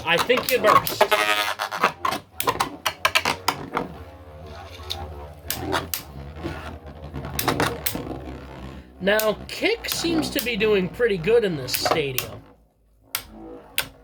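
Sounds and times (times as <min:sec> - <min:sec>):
low steady whir: 0:00.0 - 0:14.0.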